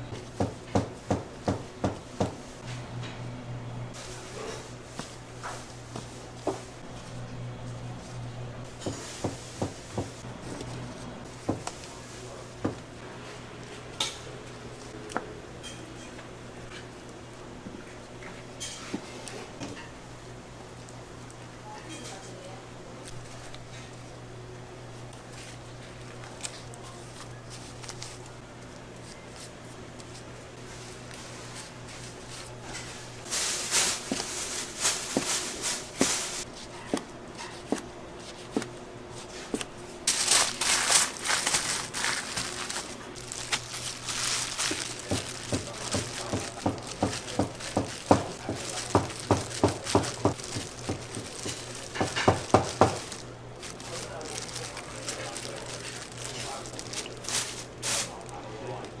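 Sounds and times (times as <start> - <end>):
steady low hum: 0.0 - 15.6
food wrapping crinkling: 25.3 - 36.5, 40.0 - 58.5.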